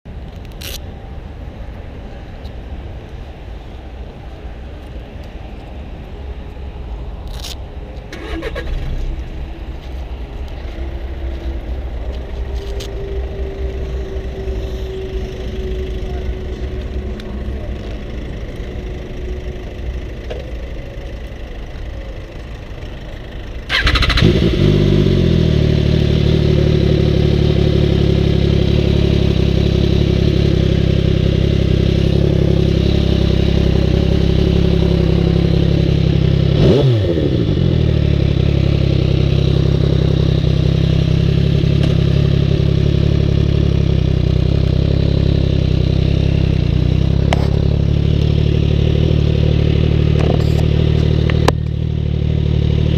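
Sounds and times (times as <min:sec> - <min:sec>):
motorcycle engine idling: 0:10.3 - 0:52.9
engine revving: 0:23.7 - 0:52.9.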